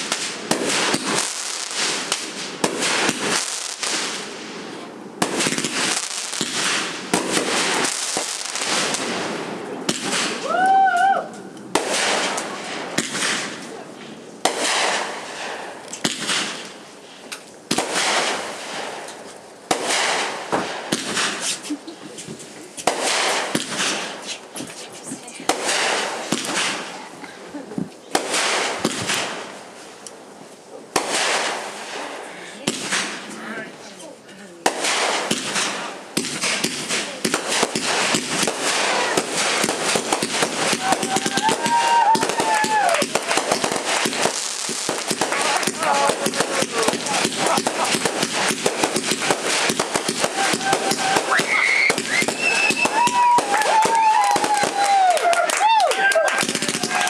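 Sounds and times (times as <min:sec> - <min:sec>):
fireworks bangs: 0:00.0 - 0:57.0
fireworks crackling hiss: 0:00.0 - 0:57.0
steady whistling tone: 0:51.4 - 0:53.0.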